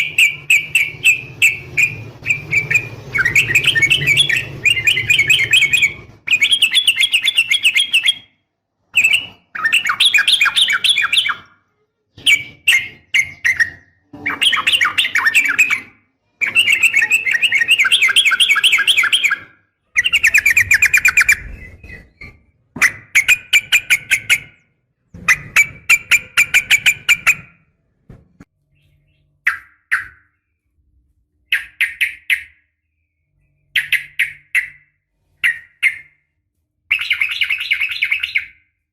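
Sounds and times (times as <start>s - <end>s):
bird chattering trills: 0.0s - 8.2s.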